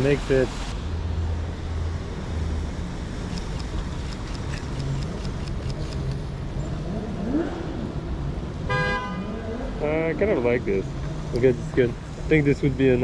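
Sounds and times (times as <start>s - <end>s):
cars passing on wet road: 0.0s - 13.0s
car horn toot: 8.7s - 9.3s.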